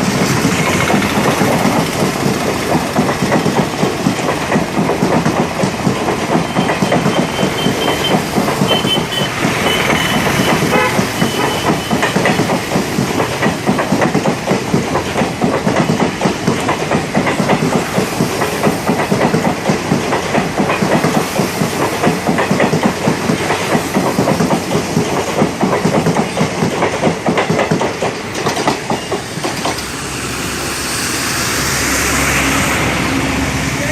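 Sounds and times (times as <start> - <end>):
train wheels clacking over rail joints: 0.0 - 33.9.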